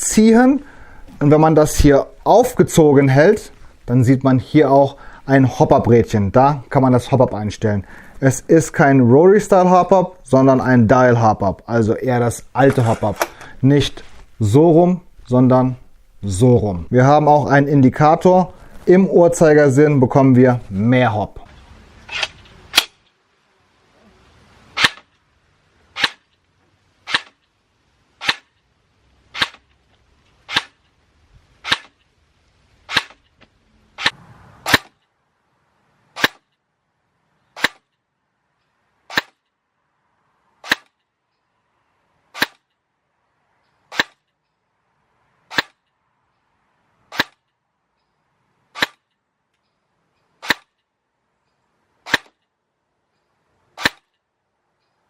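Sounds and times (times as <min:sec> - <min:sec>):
airsoft gun firing sharp cracks: 0:22.1 - 0:23.0, 0:24.8 - 0:25.1, 0:26.0 - 0:26.3, 0:27.0 - 0:27.4, 0:28.2 - 0:28.6, 0:29.3 - 0:29.7, 0:30.5 - 0:30.8, 0:31.6 - 0:32.0, 0:32.9 - 0:33.2, 0:34.0 - 0:35.0, 0:36.2 - 0:36.6, 0:37.6 - 0:37.9, 0:39.1 - 0:39.4, 0:40.6 - 0:41.0, 0:42.3 - 0:42.7, 0:43.9 - 0:44.3, 0:45.5 - 0:45.8, 0:47.1 - 0:47.5, 0:48.7 - 0:49.1, 0:50.4 - 0:50.8, 0:52.0 - 0:52.4, 0:53.8 - 0:54.2.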